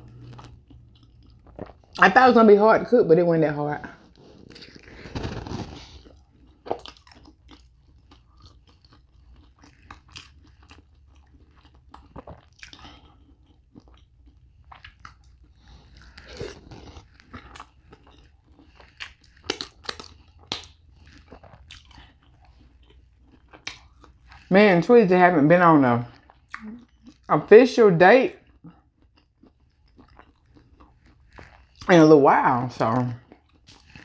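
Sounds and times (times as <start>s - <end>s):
person chewing food: 0.0s - 2.0s, 3.9s - 24.5s, 26.0s - 27.3s, 28.3s - 32.0s, 32.8s - 34.0s
wet mouth clicks and smacks: 19.0s - 20.8s.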